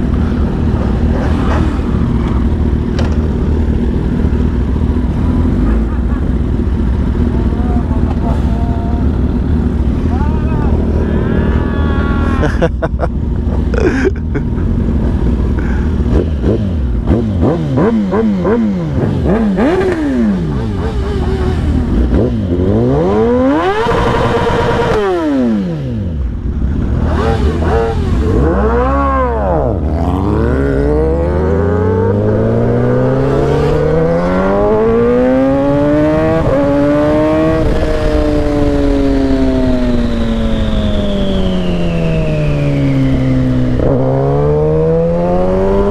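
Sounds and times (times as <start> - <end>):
motorcycle engines revving: 0.0 - 45.9.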